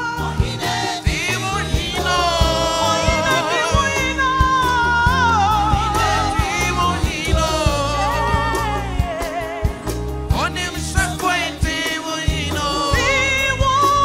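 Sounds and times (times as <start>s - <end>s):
band with bass and drums: 0.0s - 14.0s
person singing with vibrato: 0.0s - 14.0s.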